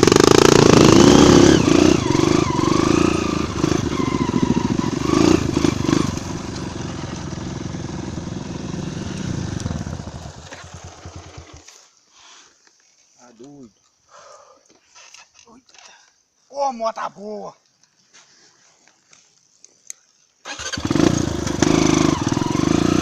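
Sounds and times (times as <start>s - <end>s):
motorcycle engine revving: 0.0s - 11.7s, 20.5s - 23.0s.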